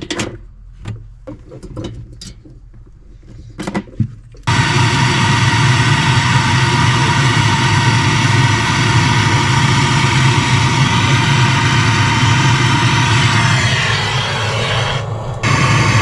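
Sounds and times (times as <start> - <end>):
machine drone with low hum: 4.4 - 16.0.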